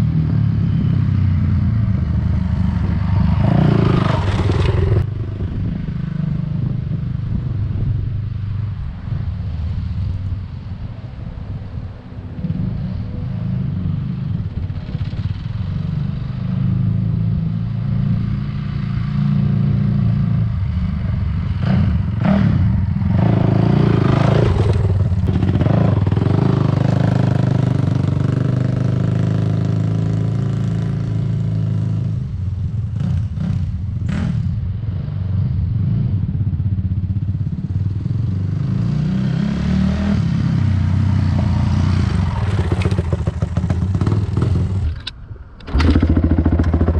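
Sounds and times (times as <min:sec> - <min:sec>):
loud motorcycle engine revving: 0:00.0 - 0:05.5, 0:21.4 - 0:32.3, 0:32.9 - 0:34.6, 0:37.5 - 0:45.0, 0:45.7 - 0:46.9.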